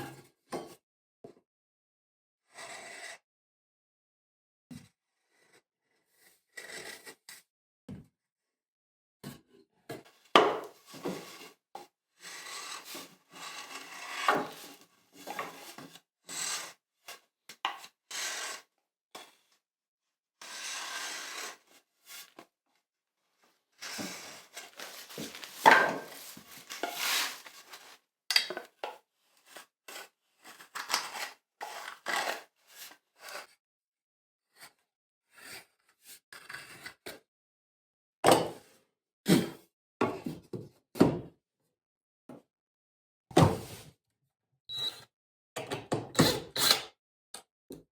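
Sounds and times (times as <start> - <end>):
hand tool scraping wood: 23.8 - 27.9.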